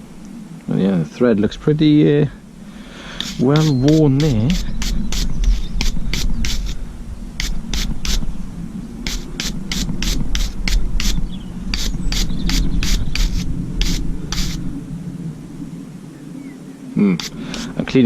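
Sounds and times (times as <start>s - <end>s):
low steady rumble: 0.0s - 18.0s
scrubbing steel thread: 3.1s - 6.8s, 7.4s - 8.3s, 9.1s - 14.6s, 17.2s - 18.0s.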